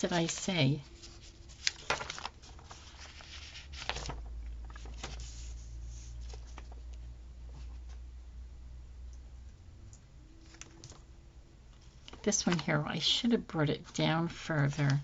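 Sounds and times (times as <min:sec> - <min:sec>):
paper rustling: 0:00.0 - 0:08.0, 0:11.8 - 0:12.8
low steady hum: 0:00.0 - 0:15.0.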